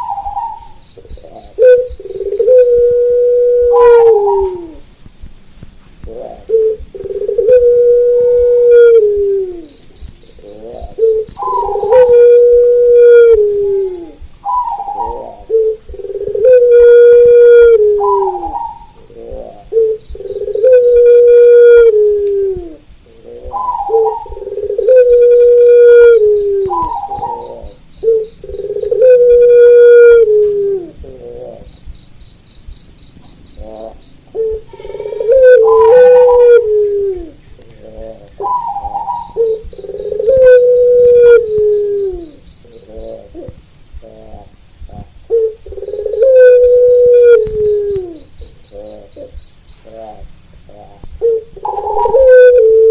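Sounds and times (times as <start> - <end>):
dove calls dropping in pitch: 0.0 - 4.9, 5.6 - 32.0, 32.8 - 52.9
doves cooing in rolling trills: 0.0 - 52.9
insect chirping: 0.0 - 52.9
rooster crowing: 34.6 - 36.7.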